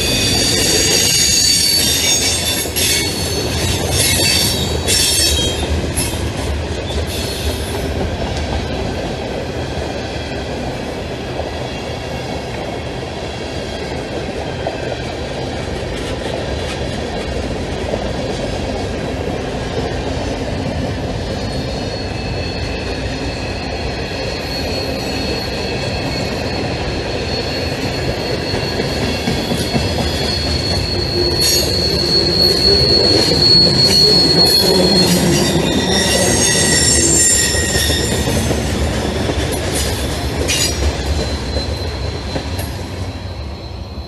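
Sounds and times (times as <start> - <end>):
high wheel squeal: 0.0 - 6.2, 21.2 - 44.0
train wheels rumbling on rails: 0.0 - 44.0.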